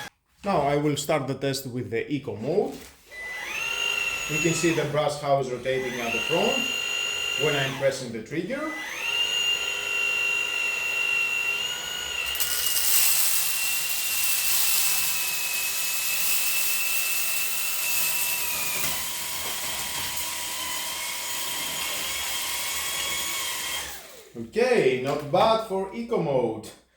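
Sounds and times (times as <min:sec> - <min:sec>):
vacuum motor whine: 0:03.1 - 0:24.3.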